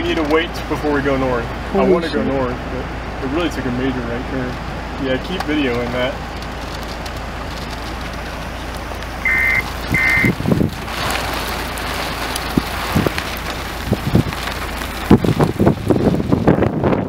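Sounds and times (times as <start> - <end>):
rain: 0.0 - 17.0
wind: 0.0 - 17.0
wind gusts thumping microphone: 6.2 - 17.0
short electronic beeps: 9.3 - 10.3.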